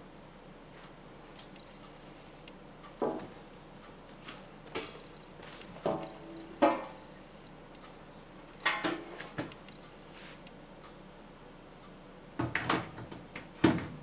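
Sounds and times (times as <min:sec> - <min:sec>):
fan parts knocking and clattering: 0:03.0 - 0:03.4, 0:04.6 - 0:07.0, 0:08.6 - 0:09.6, 0:12.4 - 0:14.0.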